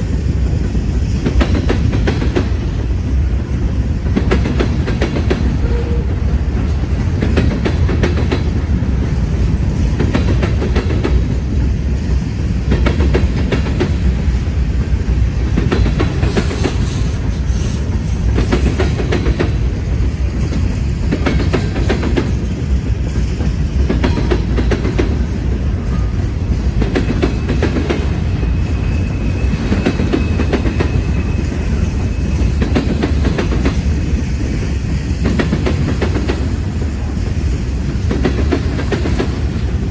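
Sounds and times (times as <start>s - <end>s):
freight train cars rumbling: 0.0s - 39.9s
wheels clicking over rail joints: 1.2s - 28.3s.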